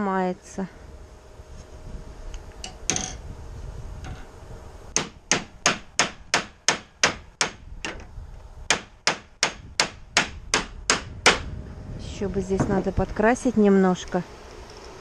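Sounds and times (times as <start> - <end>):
hammer blows on metal: 8.7 - 11.5.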